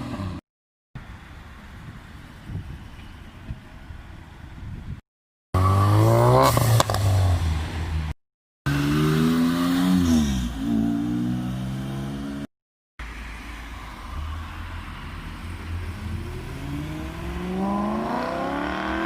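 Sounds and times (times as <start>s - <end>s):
car engine revving: 15.4s - 19.0s.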